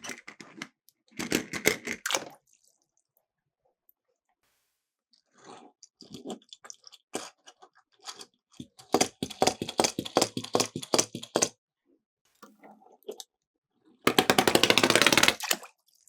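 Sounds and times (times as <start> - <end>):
toy cars clattering on plastic track: 14.1 - 15.5.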